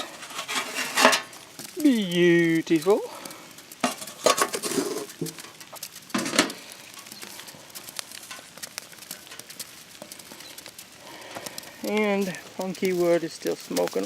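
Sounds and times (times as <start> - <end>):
metal tin clinking and clattering: 0.0 - 1.4, 3.8 - 6.6
light rain pattering: 0.0 - 14.0.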